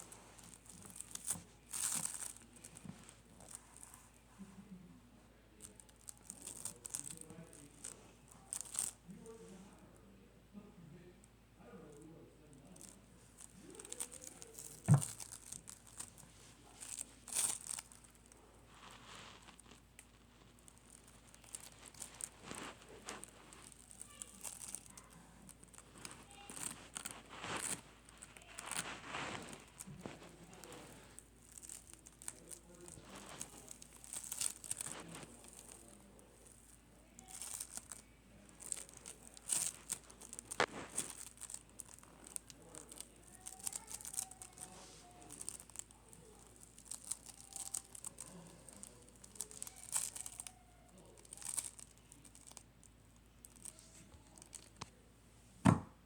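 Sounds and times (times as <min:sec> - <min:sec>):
slime crackling and popping: 0:00.0 - 0:04.2, 0:05.6 - 0:09.1, 0:12.6 - 0:55.0.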